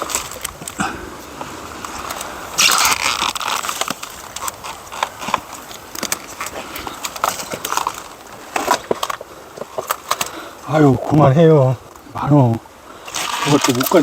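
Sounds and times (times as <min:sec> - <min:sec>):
dry branches rustling and snapping: 0:00.0 - 0:14.0
sharp cracks: 0:01.8 - 0:10.4, 0:13.1 - 0:14.0.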